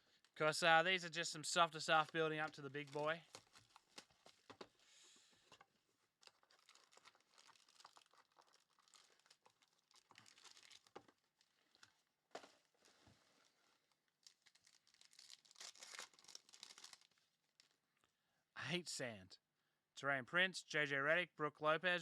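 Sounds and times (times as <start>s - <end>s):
foil wrappers crinkling and tearing: 2.4s - 4.7s, 6.2s - 11.9s, 14.2s - 17.8s.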